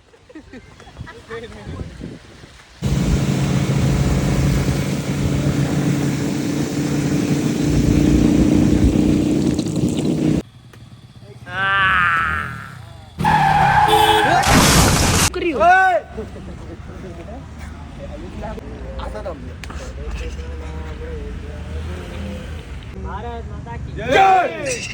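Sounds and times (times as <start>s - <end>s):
wind rush: 1.8s - 10.4s
motorcycle engine running: 2.8s - 11.5s.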